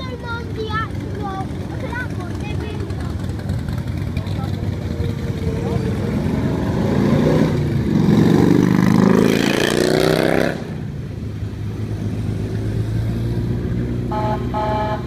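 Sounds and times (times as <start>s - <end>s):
truck engine accelerating: 0.0s - 15.0s
horn tooting: 14.0s - 15.0s.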